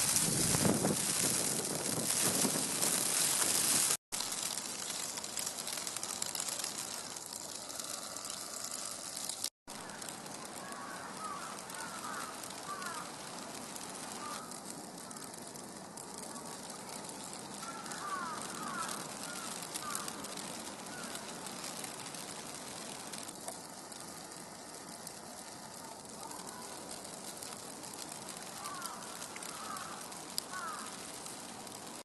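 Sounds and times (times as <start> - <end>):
snowstorm hiss: 0.0 - 9.2, 9.8 - 32.0
fine crackling ticks: 0.0 - 32.0.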